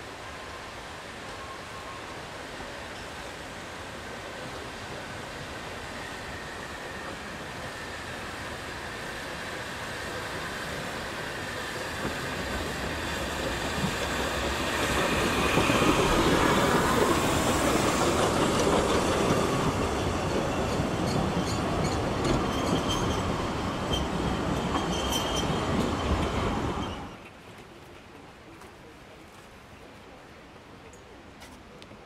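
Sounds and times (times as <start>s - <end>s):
train wheels rumbling: 4.5s - 27.4s.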